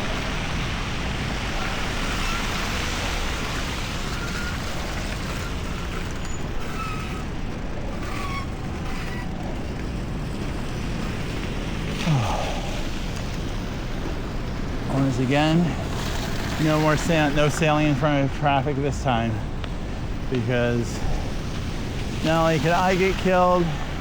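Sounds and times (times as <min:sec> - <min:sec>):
road traffic: 0:00.0 - 0:24.0
wind: 0:00.0 - 0:24.0
faint high squeaks: 0:04.1 - 0:10.0.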